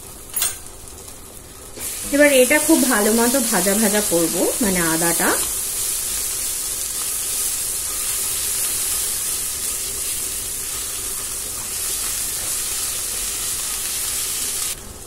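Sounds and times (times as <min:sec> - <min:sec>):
spices sizzling in oil: 0:00.0 - 0:15.0.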